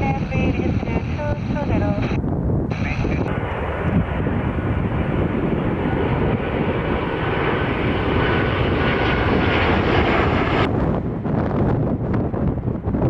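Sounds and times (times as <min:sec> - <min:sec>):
jet airliner engine noise: 0:00.0 - 0:13.0
wind buffeting microphone: 0:00.0 - 0:13.0.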